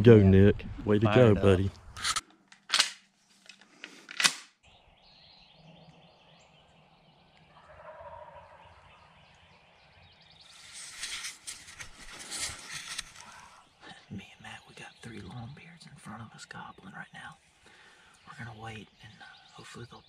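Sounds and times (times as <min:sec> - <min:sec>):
distant wild turkey gobble: 0:05.6 - 0:10.0
rustling: 0:10.5 - 0:13.6.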